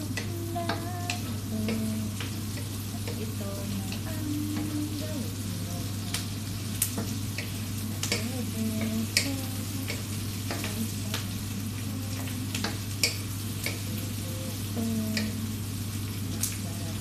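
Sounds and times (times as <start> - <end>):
chicken sizzling in a pot: 0.0 - 17.0
steady low hum: 0.0 - 17.0
utensil clicking against pot: 0.1 - 4.7, 6.8 - 11.2, 12.1 - 14.0.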